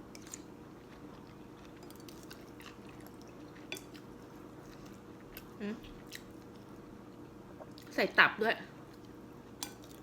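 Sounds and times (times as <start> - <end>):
soft chewing: 0.0 - 8.0.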